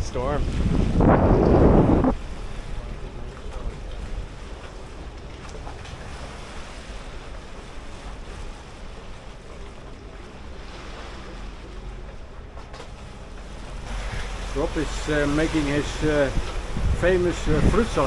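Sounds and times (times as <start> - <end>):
wind buffeting microphone: 0.0 - 5.1, 13.5 - 18.0
sea water washing along hulls: 0.0 - 18.0.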